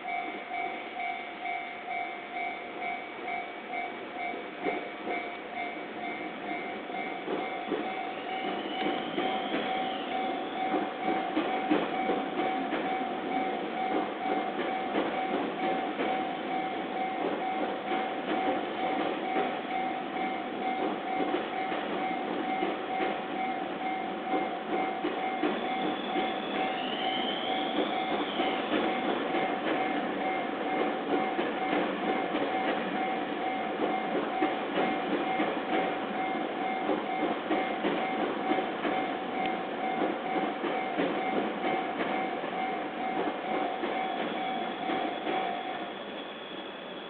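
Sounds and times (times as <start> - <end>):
crossing alarm steady tone: 0.0 - 47.0
train wheels clattering over rail joints: 4.2 - 45.8
brief high squeal: 8.2 - 10.6, 25.6 - 28.8, 44.0 - 47.0.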